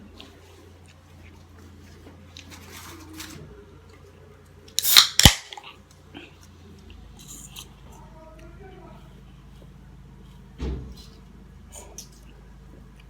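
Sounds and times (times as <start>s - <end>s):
chewing: 0.0s - 3.0s, 5.5s - 13.0s.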